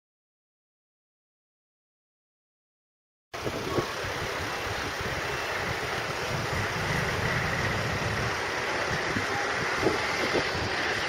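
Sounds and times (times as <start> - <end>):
rumbling hiss of moving vehicle: 3.4 - 11.0
wind buffeting microphone: 3.4 - 11.0.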